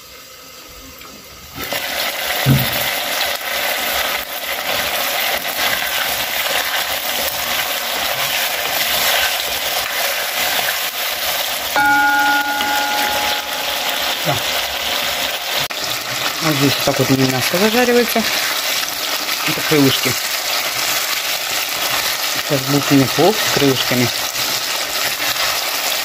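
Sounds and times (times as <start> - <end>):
chicken frying in oil: 0.0 - 26.0
steady tone: 11.8 - 15.3.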